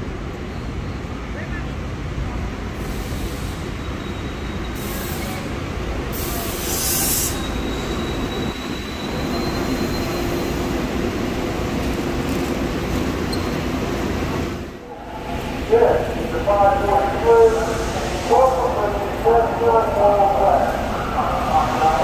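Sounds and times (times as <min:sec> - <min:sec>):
train rumbling: 0:00.0 - 0:22.0
high wheel squeal: 0:03.6 - 0:05.5, 0:06.2 - 0:10.8, 0:13.2 - 0:13.6.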